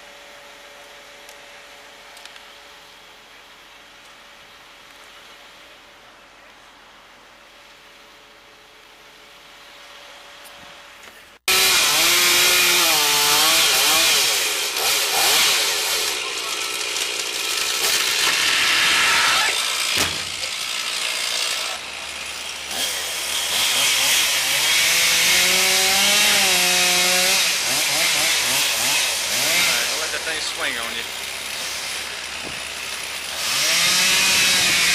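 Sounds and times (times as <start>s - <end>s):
chainsaw cutting wood: 11.4s - 34.9s
sharp knock: 20.0s - 20.4s.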